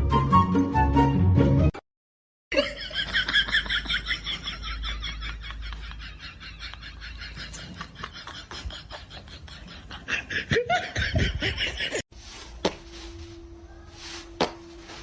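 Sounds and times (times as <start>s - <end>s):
people laughing: 2.6s - 12.0s.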